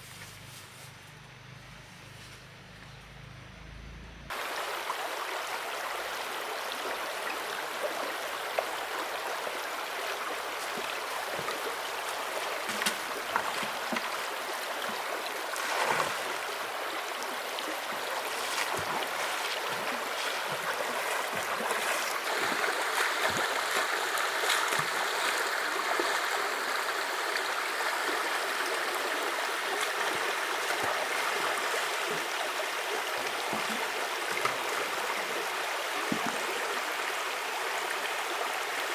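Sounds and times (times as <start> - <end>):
flowing river water: 4.3 - 38.9
small knocks and splashes: 10.6 - 16.4, 18.2 - 25.3, 33.2 - 34.8, 36.0 - 36.4.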